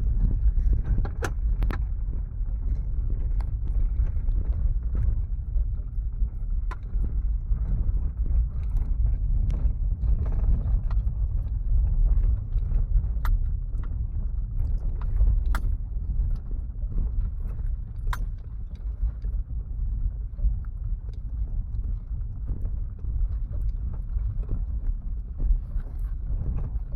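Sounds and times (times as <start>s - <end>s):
stones clicking against car: 12.6s - 16.5s.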